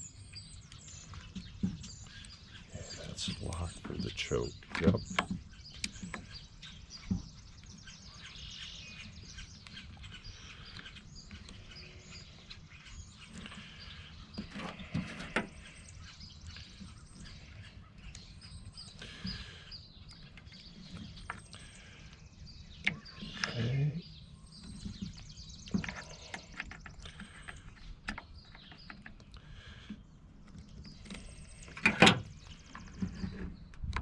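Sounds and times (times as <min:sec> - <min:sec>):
faint bird chirps: 0:00.0 - 0:34.0
light clicks and knocks: 0:02.8 - 0:06.4.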